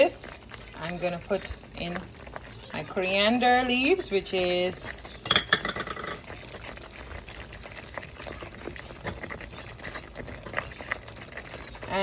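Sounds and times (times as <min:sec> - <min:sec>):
sauce bubbling in a pan: 0:00.0 - 0:12.0.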